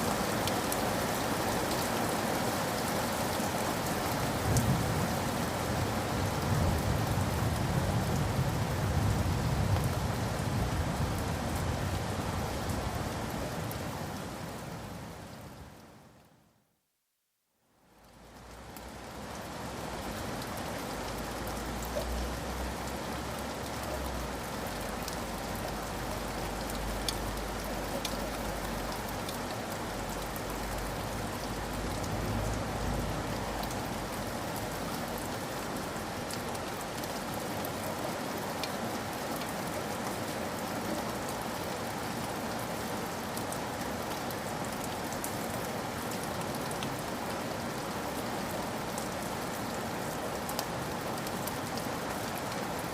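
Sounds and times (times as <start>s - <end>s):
steady rain falling: 0.0s - 52.9s.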